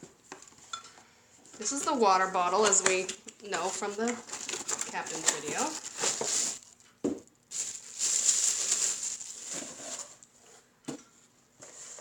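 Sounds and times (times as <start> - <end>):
plastic packaging rustling: 2.7 - 10.4.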